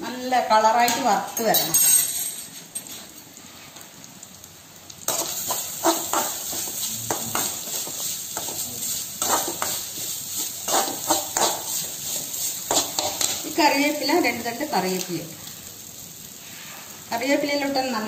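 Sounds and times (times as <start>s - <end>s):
coconut sizzling in oil: 2.5s - 18.0s
steel spoon scraping pan: 5.1s - 13.4s.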